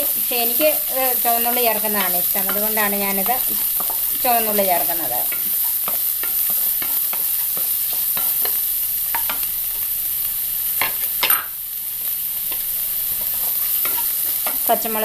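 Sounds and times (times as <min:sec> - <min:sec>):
shallots sizzling in oil: 0:00.0 - 0:15.0
wooden spatula scraping and tapping: 0:01.9 - 0:04.6, 0:05.2 - 0:09.5, 0:12.4 - 0:14.7.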